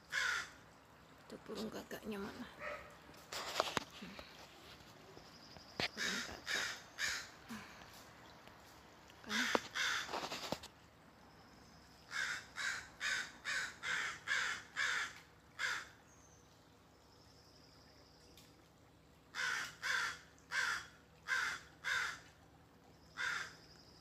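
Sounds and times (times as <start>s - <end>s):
crow cawing: 0.1s - 0.6s, 6.0s - 7.7s, 9.2s - 10.3s, 12.1s - 16.0s, 19.3s - 22.3s, 23.2s - 23.6s.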